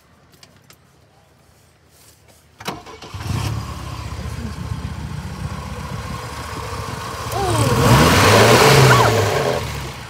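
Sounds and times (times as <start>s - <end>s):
car engine starting and idling: 2.6s - 10.0s.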